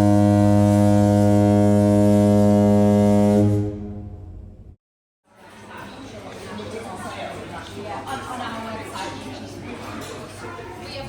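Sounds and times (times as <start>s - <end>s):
ship's horn blast: 0.0s - 4.8s.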